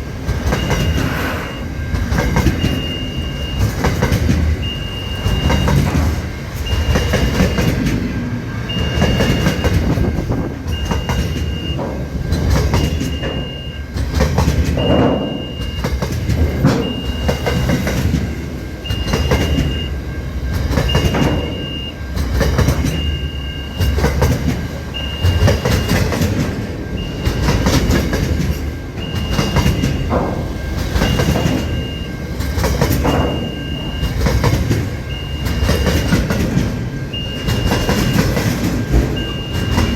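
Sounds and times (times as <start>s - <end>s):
freight train wagons rumbling: 0.0s - 39.9s
wheels clacking over rail joints: 0.0s - 39.9s
high beeping tone: 0.4s - 3.9s, 8.5s - 14.0s, 24.9s - 32.4s, 33.0s - 39.9s.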